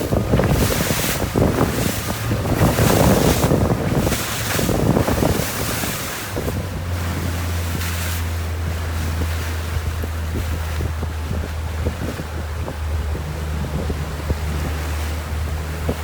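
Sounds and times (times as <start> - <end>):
water rushing past hull: 0.0 - 16.0
wind buffeting microphone: 0.0 - 16.0.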